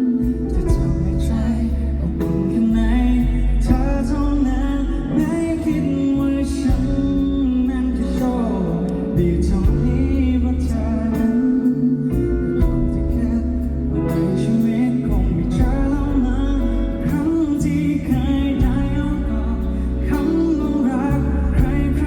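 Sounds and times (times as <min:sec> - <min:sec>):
bass notes: 0:00.0 - 0:22.0
lead vocal singing: 0:00.0 - 0:22.0
live pop band playing: 0:00.0 - 0:22.0
steady drum beat: 0:00.6 - 0:02.4, 0:03.6 - 0:04.4, 0:06.6 - 0:07.5, 0:09.5 - 0:10.4, 0:12.6 - 0:13.7, 0:15.6 - 0:16.2, 0:18.1 - 0:19.4, 0:21.1 - 0:22.0.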